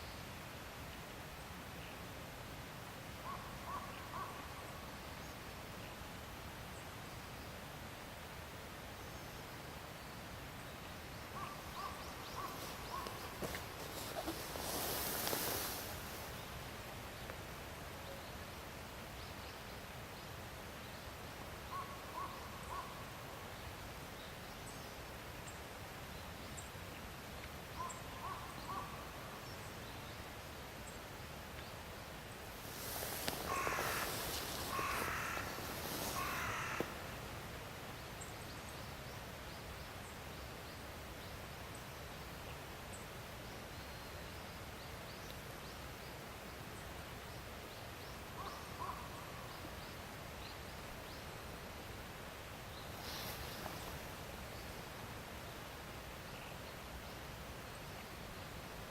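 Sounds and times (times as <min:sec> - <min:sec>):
steady outdoor hiss: 0:00.0 - 0:58.9
loud harsh bird calls: 0:32.7 - 0:37.2.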